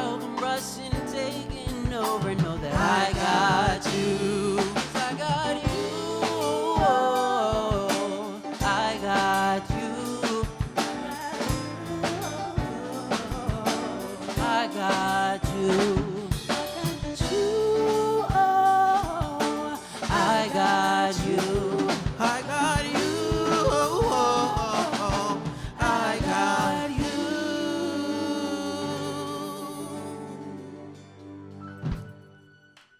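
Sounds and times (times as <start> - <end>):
soul band with singers: 0.0 - 32.1.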